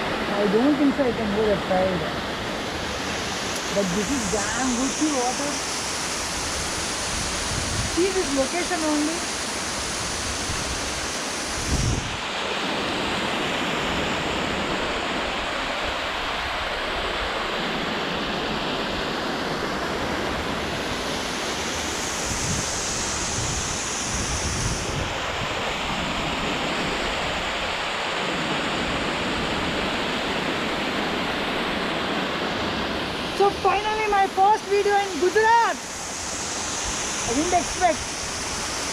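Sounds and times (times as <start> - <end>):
waterfall rushing: 0.0 - 38.9
wind buffeting microphone: 6.6 - 9.2, 9.9 - 12.4, 22.2 - 27.9.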